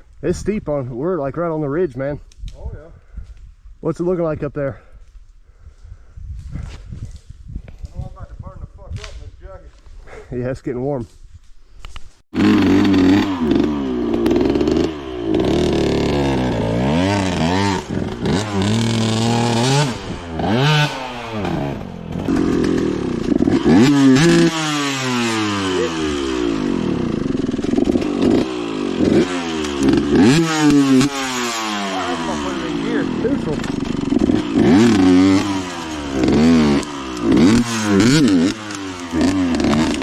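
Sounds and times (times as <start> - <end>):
dirt bike engine revving: 12.4 - 40.0.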